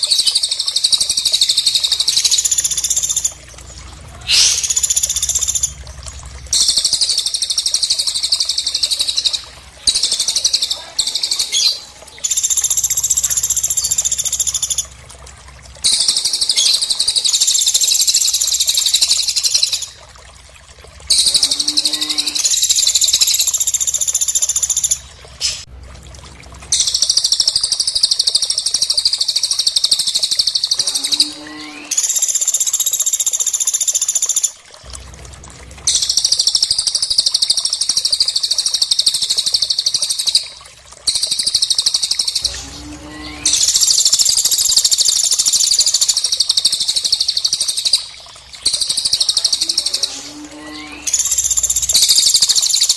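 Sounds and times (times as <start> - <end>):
songbirds trilling: 0.0 - 15.1, 15.8 - 20.0, 21.1 - 25.7, 41.1 - 52.9.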